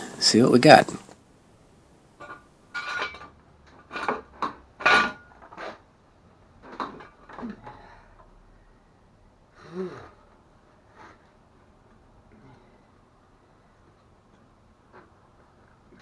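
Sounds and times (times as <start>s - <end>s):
metal objects clanking: 2.2s - 5.8s.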